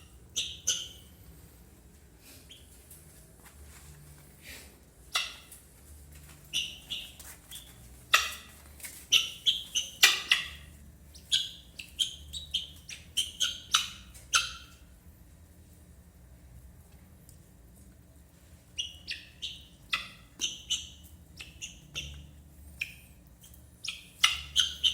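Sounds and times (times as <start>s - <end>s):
guineafowl harsh calls: 5.1s - 5.5s, 8.1s - 8.5s, 9.1s - 10.7s, 11.3s - 14.8s, 23.8s - 24.9s.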